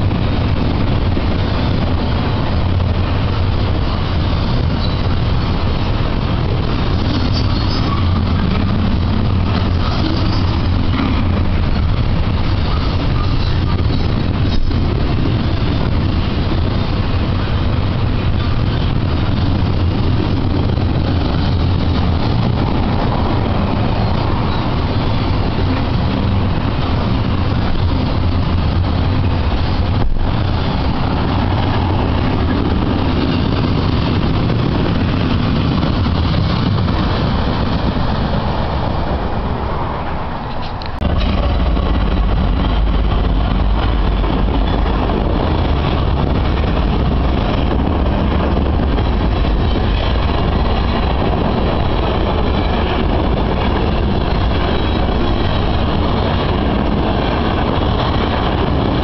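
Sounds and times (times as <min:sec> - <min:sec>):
train wheels running on rails: 0:00.0 - 0:59.0.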